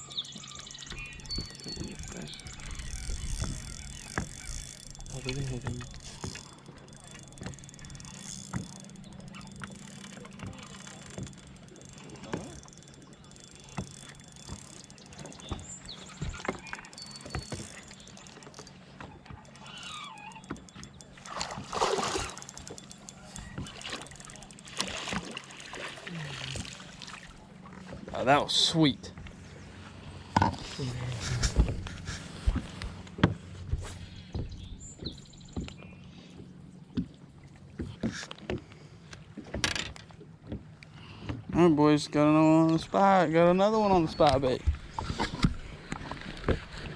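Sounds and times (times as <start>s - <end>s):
faint high chirps: 0.0s - 18.8s
boat engine hum: 0.0s - 46.9s
gear knocking against hull: 0.2s - 25.8s.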